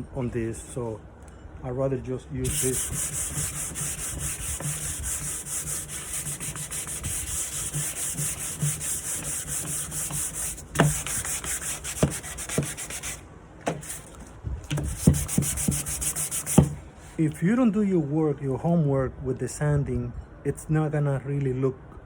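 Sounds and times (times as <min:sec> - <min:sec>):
sandpaper sanding wood: 0:02.4 - 0:14.1, 0:14.8 - 0:16.8.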